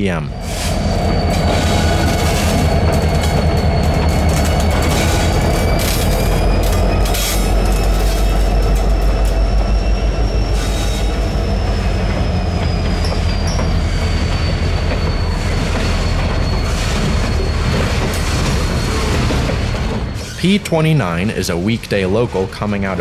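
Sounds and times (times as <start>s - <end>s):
freight train rumbling: 0.0s - 23.0s
high wheel squeal: 0.3s - 23.0s
wheels clicking over rail joints: 1.4s - 9.8s.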